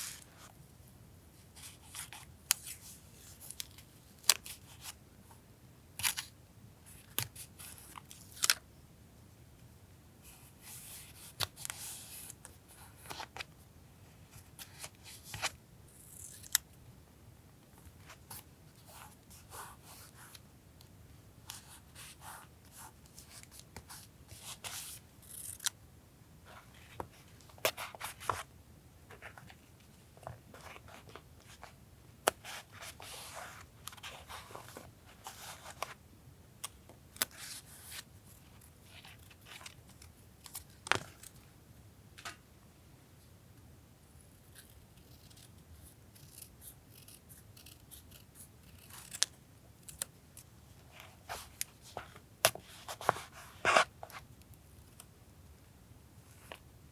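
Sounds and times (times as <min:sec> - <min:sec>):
scissors snipping paper: 0:24.8 - 0:25.7, 0:44.6 - 0:50.1.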